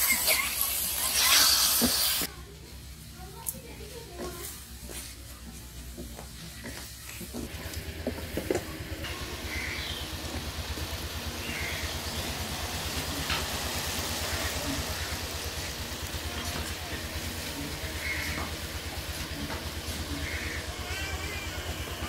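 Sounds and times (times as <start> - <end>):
masala sizzling in pan: 0.0 - 2.3, 9.1 - 21.9.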